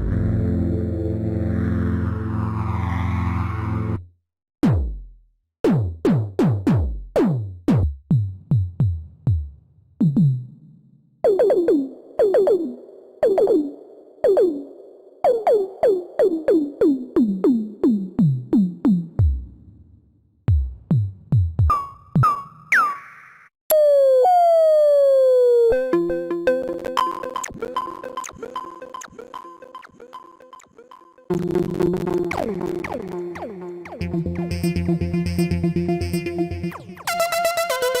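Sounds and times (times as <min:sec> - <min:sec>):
synthesizer held chord: 0:00.0 - 0:03.8
synthesizer percussive zaps: 0:26.9 - 0:38.0.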